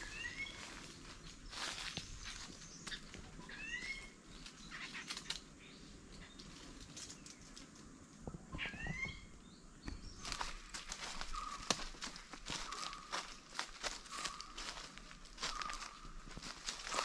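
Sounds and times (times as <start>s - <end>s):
footsteps: 9.9s - 17.0s.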